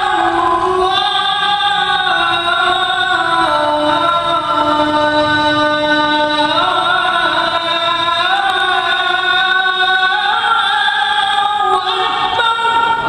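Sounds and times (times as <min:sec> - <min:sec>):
man chanting call to prayer: 0:00.0 - 0:13.0.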